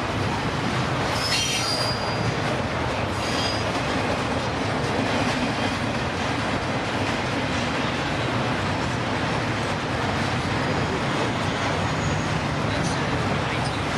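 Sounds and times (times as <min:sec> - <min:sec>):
freight train rumble and clatter: 0:00.0 - 0:13.9
train wheel squeals: 0:01.1 - 0:02.4, 0:03.1 - 0:03.8, 0:10.6 - 0:12.6.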